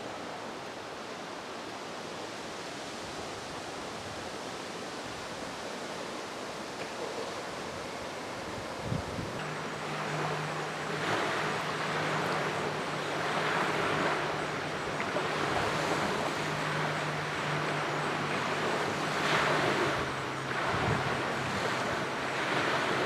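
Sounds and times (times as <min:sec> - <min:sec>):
low engine hum: 0:08.2 - 0:23.0
small waves washing against rocks: 0:09.4 - 0:23.0.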